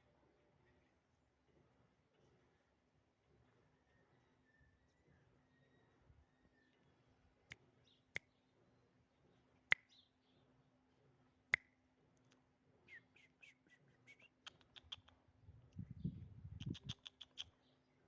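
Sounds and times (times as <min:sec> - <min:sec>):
small bird chirping: 0:12.8 - 0:18.0.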